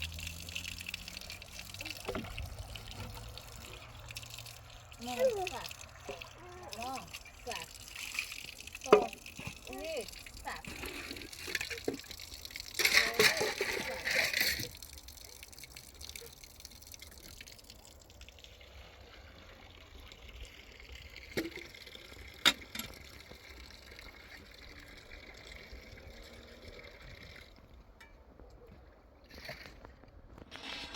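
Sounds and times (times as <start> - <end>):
water running: 0.0 - 27.8.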